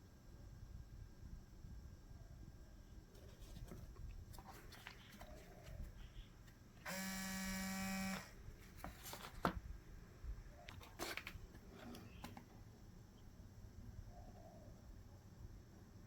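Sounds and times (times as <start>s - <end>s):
electric buzz: 6.8s - 8.4s.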